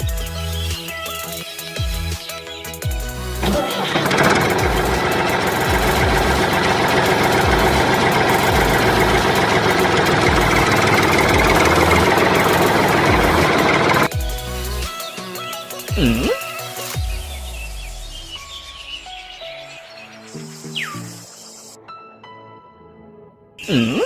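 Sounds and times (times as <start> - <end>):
small machine motor running: 3.4 - 14.1.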